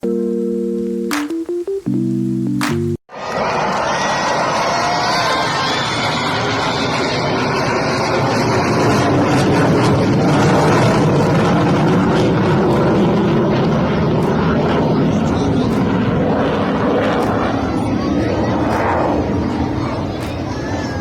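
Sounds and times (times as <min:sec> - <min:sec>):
military aircraft engine roar: 0:03.1 - 0:21.0.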